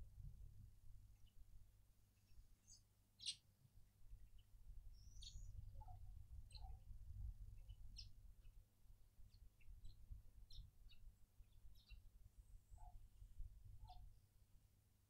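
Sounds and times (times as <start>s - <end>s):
small birds chirping: 1.1s - 3.5s, 4.2s - 8.7s, 9.3s - 14.2s.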